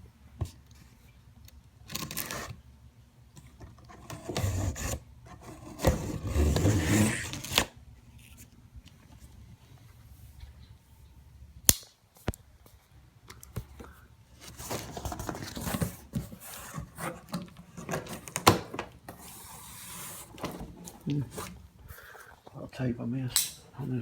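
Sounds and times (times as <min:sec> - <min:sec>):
packing tape being cut and pulled: 0:01.9 - 0:02.6, 0:04.0 - 0:07.7
cardboard scraping and rustling: 0:03.9 - 0:08.5, 0:14.4 - 0:21.6.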